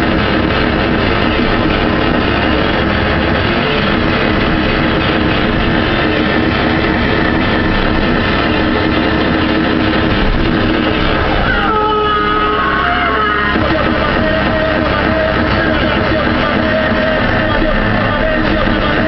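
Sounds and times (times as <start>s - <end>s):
loud distorted rock music: 0.0s - 19.0s.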